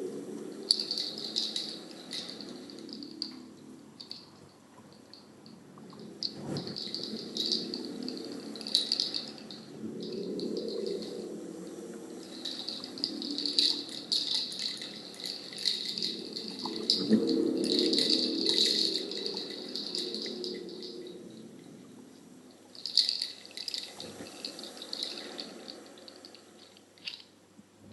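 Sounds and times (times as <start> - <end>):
low steady drone: 0.0 - 26.8
hand rattle shaken: 0.7 - 3.4, 4.0 - 4.4, 6.2 - 11.4, 12.1 - 21.5, 22.7 - 27.3.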